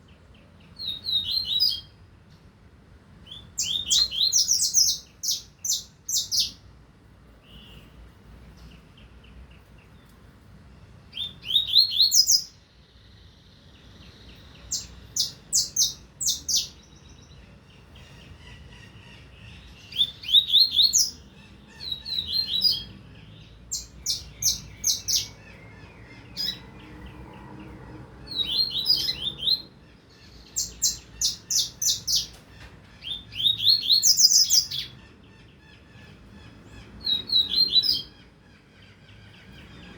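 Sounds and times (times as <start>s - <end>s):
bird singing high sweeping notes: 28.2s - 32.3s.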